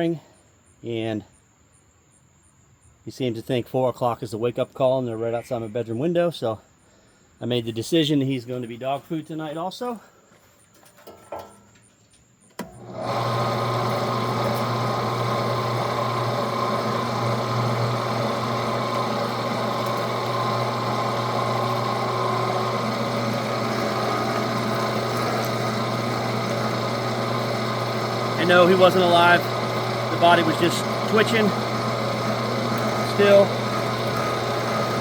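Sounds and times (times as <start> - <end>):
motor switch click: 12.6 - 12.8
electric meat grinder humming: 12.6 - 35.0.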